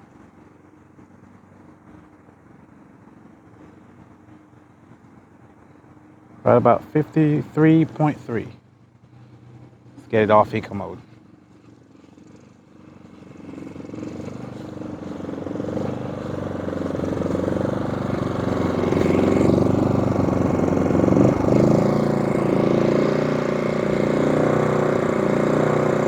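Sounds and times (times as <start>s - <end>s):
generator engine running: 6.4s - 8.6s, 9.8s - 11.2s, 12.0s - 26.0s.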